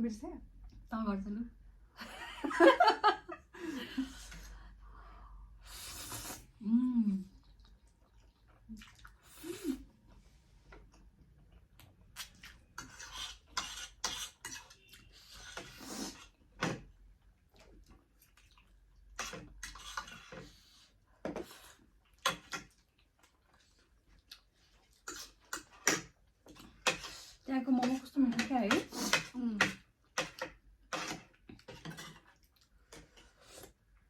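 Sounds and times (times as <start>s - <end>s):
slurping and chewing: 5.6s - 6.6s, 7.2s - 28.0s, 28.8s - 34.0s.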